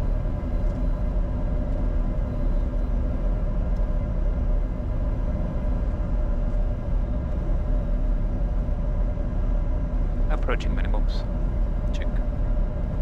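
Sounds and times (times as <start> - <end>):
low rumble of airflow and jet engines: 0.0 - 13.0
steady cockpit hum: 0.0 - 13.0.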